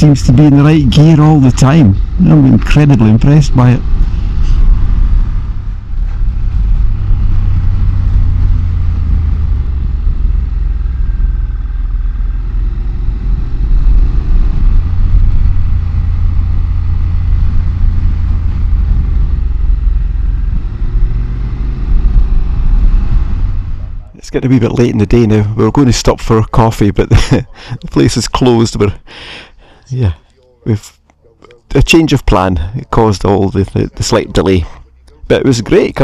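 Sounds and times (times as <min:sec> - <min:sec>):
motorcycle engine rumble: 0:00.0 - 0:28.0
wind noise: 0:01.9 - 0:23.9.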